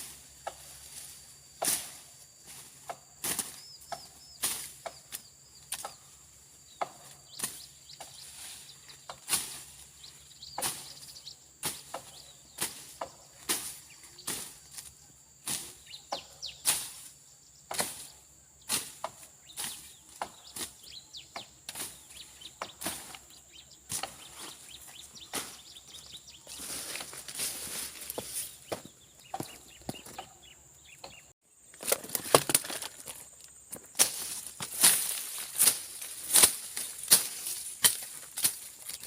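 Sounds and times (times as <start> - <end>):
high insect drone: 0.0 - 39.0
blade slashing through brush: 2.9 - 3.6, 11.6 - 14.6, 34.0 - 39.0.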